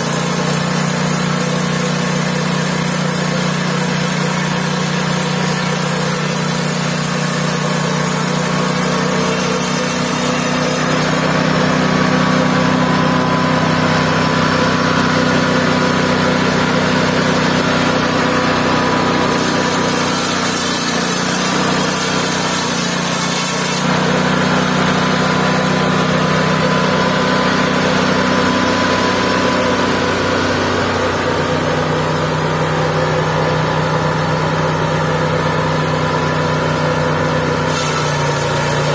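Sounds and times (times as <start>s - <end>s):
band sawmill running: 0.0s - 38.9s.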